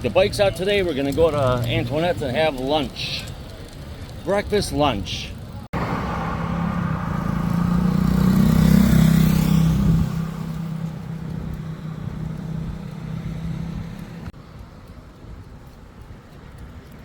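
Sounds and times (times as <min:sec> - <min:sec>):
motor vehicle passing: 0:05.4 - 0:14.4.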